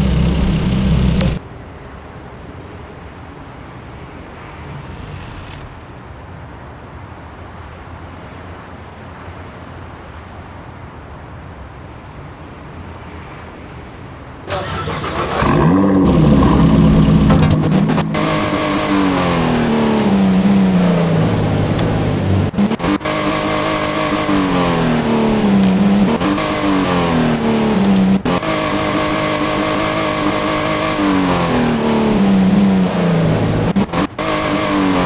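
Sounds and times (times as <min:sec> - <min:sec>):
car engine revving: 0:00.0 - 0:01.4, 0:14.5 - 0:35.0.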